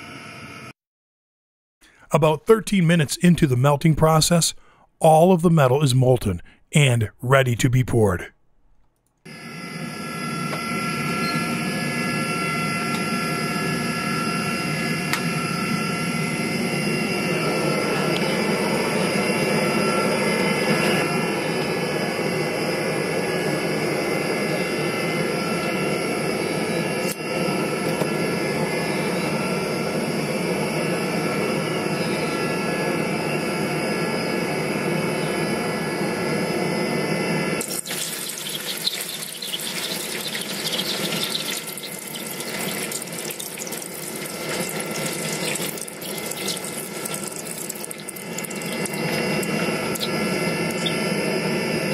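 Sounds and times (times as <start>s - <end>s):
gas burner roaring: 9.2s - 33.2s, 35.6s - 51.9s.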